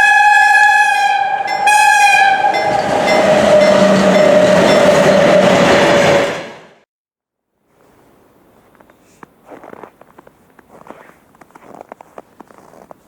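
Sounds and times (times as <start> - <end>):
locomotive horn blasts: 0.0 - 6.4
passing train rumble: 0.0 - 6.8.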